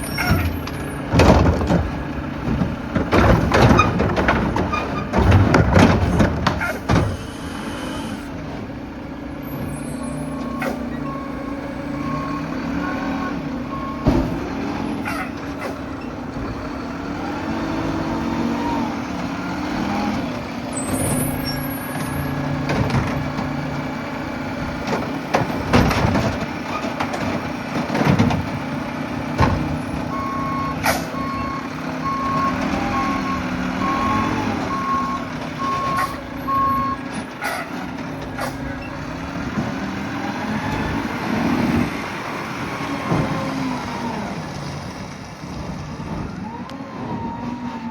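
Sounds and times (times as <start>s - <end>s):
garbage truck engine running: 0.0s - 47.9s
sharp thumps and bangs: 0.2s - 7.3s
reversing alarm beeping: 9.8s - 14.1s, 30.1s - 37.0s.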